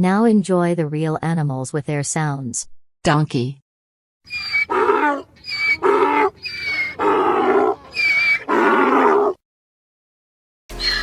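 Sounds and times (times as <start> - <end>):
donkey braying: 4.3 - 9.4.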